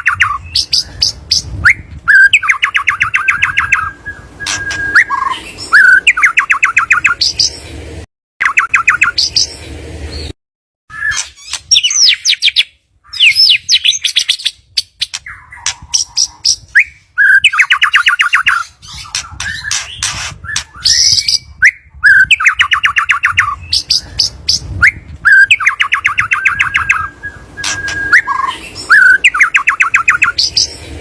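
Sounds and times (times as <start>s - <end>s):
bird song with sweeping whistles: 0.0s - 7.6s, 8.4s - 10.3s, 10.9s - 31.0s.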